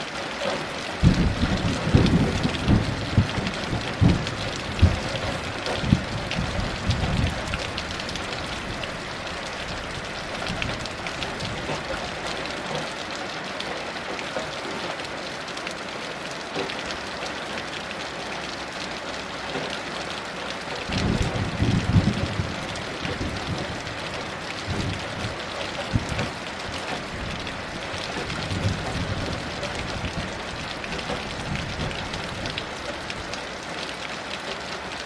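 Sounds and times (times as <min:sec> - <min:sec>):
heavy rain: 0:00.0 - 0:35.0
thunder rumble: 0:01.0 - 0:12.0, 0:20.9 - 0:32.6.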